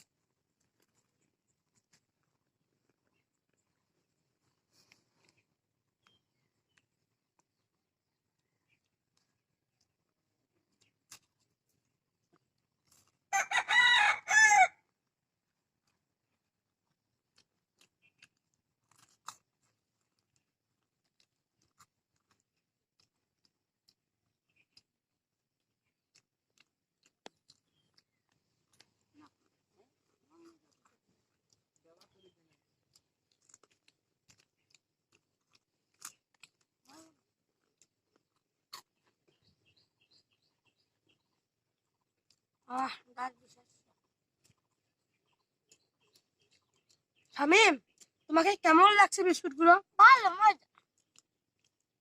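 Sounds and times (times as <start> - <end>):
crackers being bitten and chewed: 0.0 - 52.0
rooster crowing: 13.3 - 14.8.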